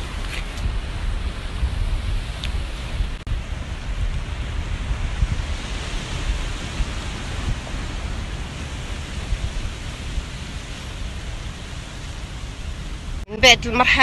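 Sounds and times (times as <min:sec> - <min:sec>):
wind buffeting microphone: 0:00.0 - 0:14.0
sea surf hiss: 0:02.2 - 0:13.2.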